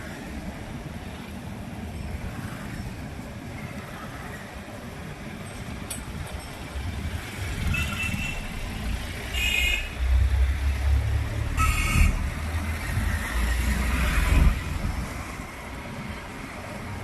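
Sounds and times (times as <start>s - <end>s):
street traffic rumble: 0.0s - 17.0s
vehicle horn honks: 7.7s - 8.5s.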